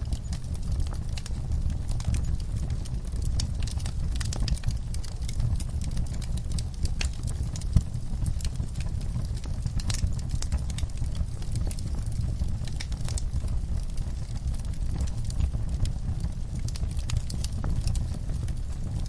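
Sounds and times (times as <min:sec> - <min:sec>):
fire crackling and popping: 0:00.0 - 0:19.0
fire flames rumbling: 0:00.0 - 0:19.0.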